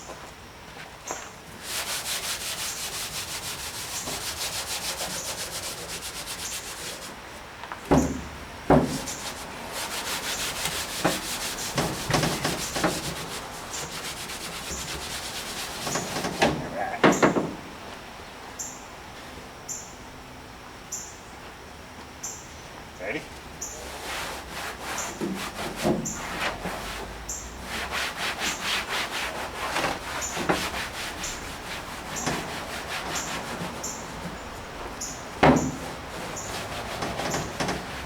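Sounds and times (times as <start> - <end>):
pad scrubbing painted metal: 1.5 - 7.3, 7.9 - 16.7, 23.6 - 38.0
sharp knocks: 7.9 - 9.4, 35.4 - 37.9.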